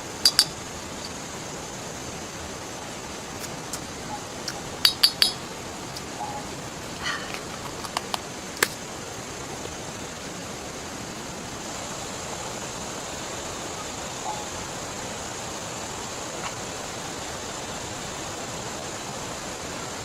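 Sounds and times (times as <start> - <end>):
rain: 0.0 - 20.0
river water rushing: 0.0 - 20.0
camp gear clinking: 0.2 - 1.2, 4.5 - 10.0.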